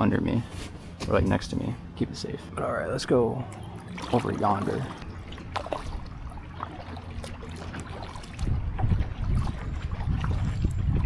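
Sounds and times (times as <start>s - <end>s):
wind buffeting microphone: 0.1s - 11.0s
kayak paddling in choppy water: 3.4s - 11.0s.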